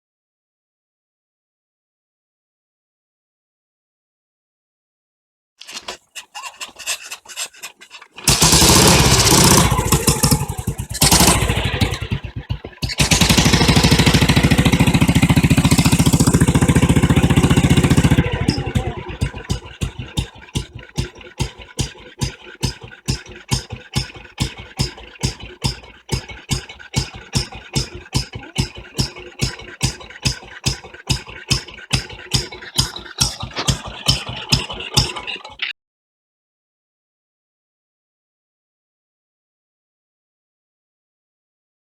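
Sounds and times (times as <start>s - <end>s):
motorcycle engine revving and idling: 5.6s - 35.7s.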